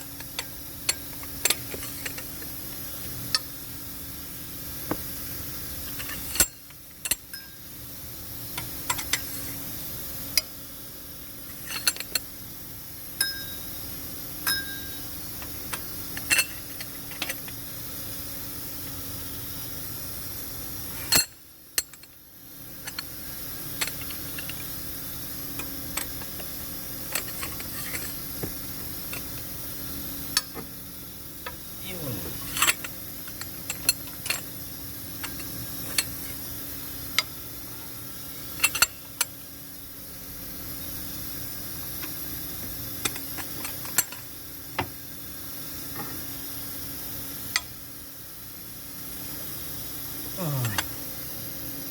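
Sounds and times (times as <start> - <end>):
steady background hum: 0.0 - 51.9
metal tools clinking: 0.1 - 2.5, 5.8 - 7.6, 8.8 - 9.5, 11.5 - 12.3, 14.5 - 15.0, 15.7 - 17.6, 25.6 - 28.3, 32.3 - 34.6, 35.2 - 36.4, 38.6 - 39.3.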